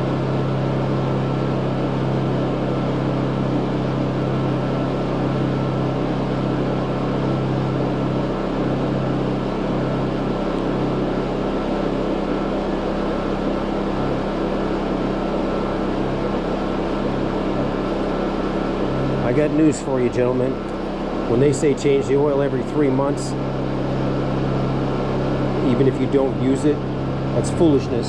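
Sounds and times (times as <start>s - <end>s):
portable generators running: 0.0s - 28.0s.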